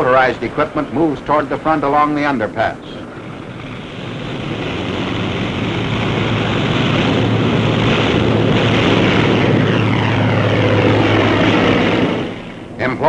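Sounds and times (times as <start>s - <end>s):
propeller plane passing: 0.0s - 13.0s.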